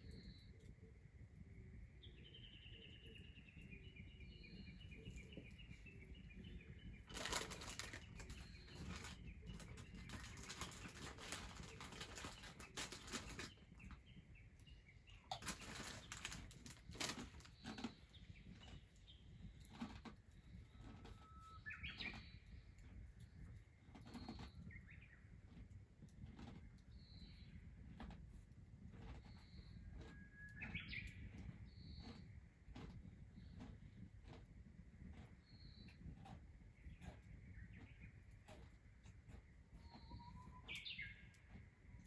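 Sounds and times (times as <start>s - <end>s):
small bird chirping: 0.0s - 25.7s, 26.6s - 27.7s, 29.2s - 32.8s, 35.2s - 42.0s
rustling noise: 6.8s - 14.0s, 15.3s - 18.8s.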